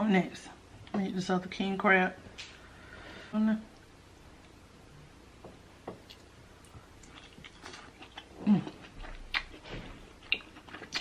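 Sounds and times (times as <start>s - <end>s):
person chewing: 6.0s - 11.0s.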